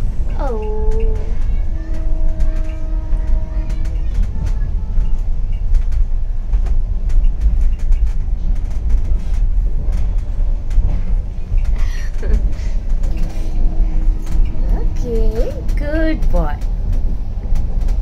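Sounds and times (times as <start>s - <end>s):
train rumbling inside coach: 0.0s - 18.0s
sharp clicks and rattles: 5.5s - 13.4s, 14.2s - 18.0s.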